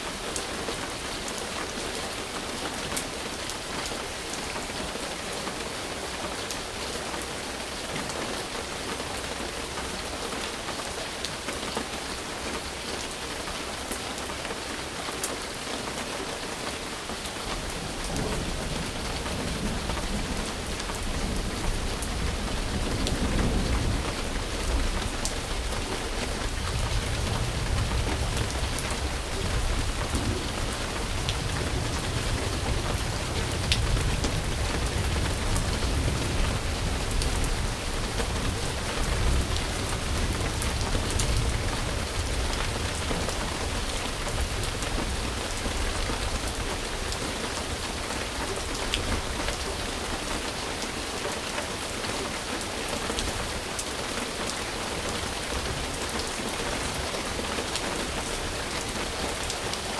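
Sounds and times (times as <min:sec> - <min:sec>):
steady rain falling: 0:00.0 - 0:59.9
distant thunder rumble: 0:17.6 - 0:47.2.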